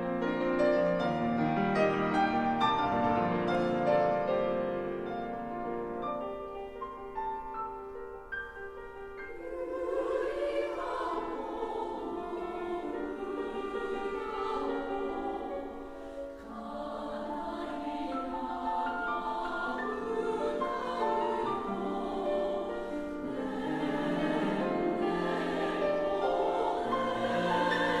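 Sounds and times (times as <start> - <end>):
piano playing: 0.0 - 28.0
women's choir singing: 9.2 - 28.0.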